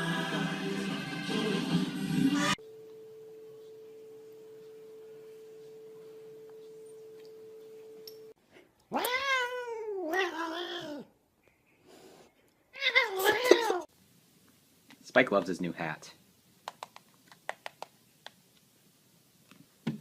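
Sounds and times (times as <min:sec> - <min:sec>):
faint steady tone: 0:02.6 - 0:08.4
cat meowing: 0:08.9 - 0:11.1.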